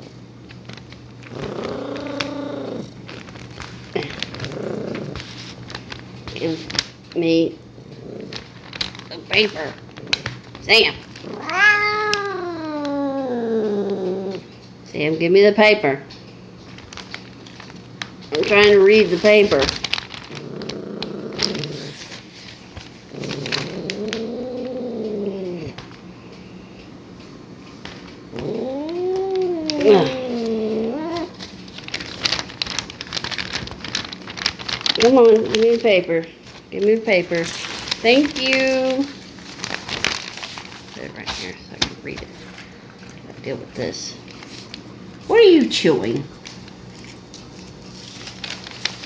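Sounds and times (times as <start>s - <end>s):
newspaper crinkling: 0.5s - 6.8s, 8.2s - 12.8s, 16.8s - 24.9s, 28.6s - 42.8s, 46.4s - 49.0s
cat meowing: 11.3s - 13.6s, 28.4s - 31.4s.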